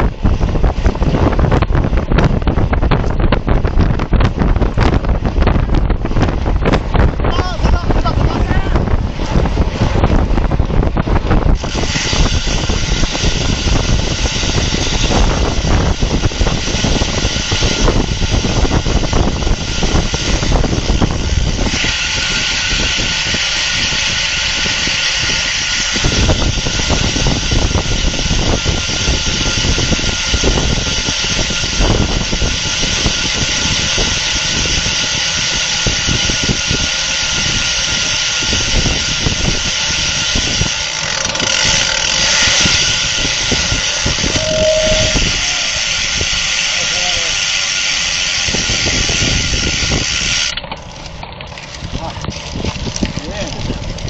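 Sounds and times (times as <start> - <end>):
road and tyre rumble: 0.0 - 54.0
wind rushing over microphone: 0.0 - 54.0.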